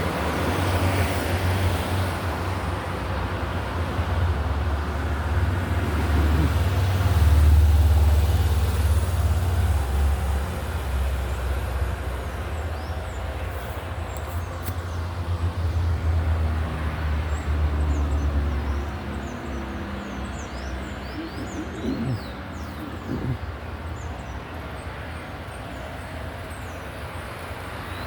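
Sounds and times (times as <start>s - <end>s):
birds chirping: 5.4s - 7.2s, 17.9s - 24.5s.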